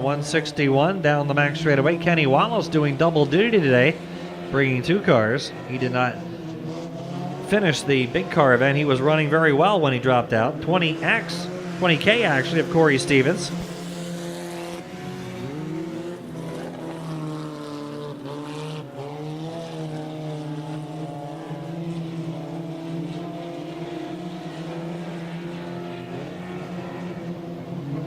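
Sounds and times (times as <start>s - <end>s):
race car engines droning: 0.0s - 28.0s.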